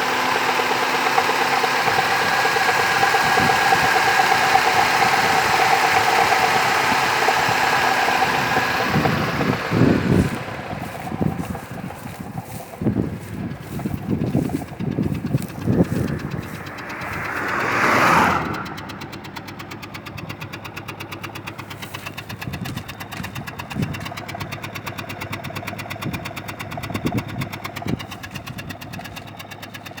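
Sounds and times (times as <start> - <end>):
car engine idling with knocking tick: 0.0 - 30.0
rushing noise: 12.8 - 19.1.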